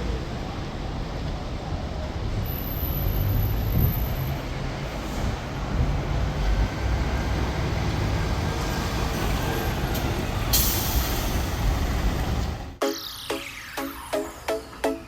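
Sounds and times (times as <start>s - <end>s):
air brakes hissing: 9.4s - 11.8s.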